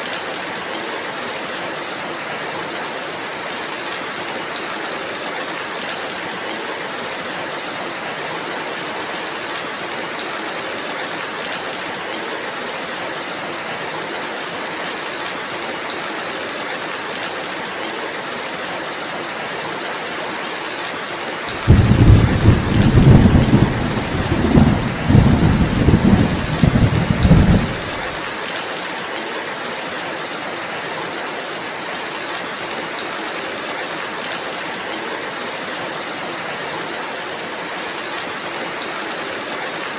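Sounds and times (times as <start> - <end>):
steady rain hissing: 0.0 - 39.9
low thunder rumble: 21.6 - 28.2.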